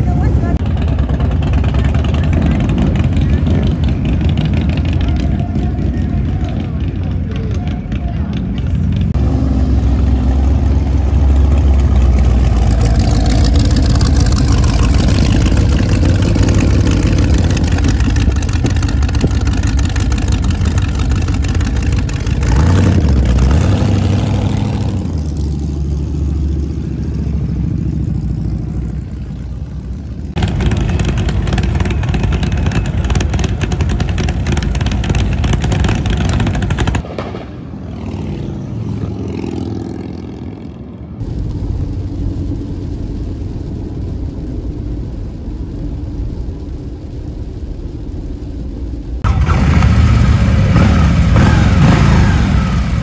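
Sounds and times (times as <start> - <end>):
motorcycles revving past: 8.9 - 29.5, 30.3 - 41.0, 49.3 - 53.0.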